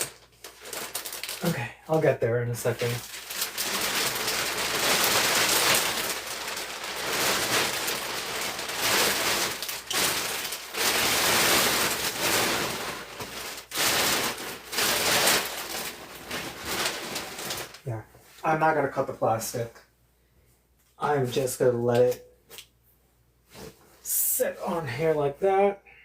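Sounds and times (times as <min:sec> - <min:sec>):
plastic sheeting crinkling: 0:00.0 - 0:18.6.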